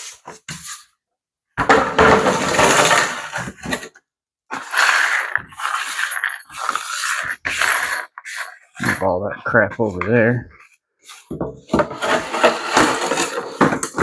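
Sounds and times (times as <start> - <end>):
plastic parts clattering: 1.6 - 4.0, 11.7 - 14.0.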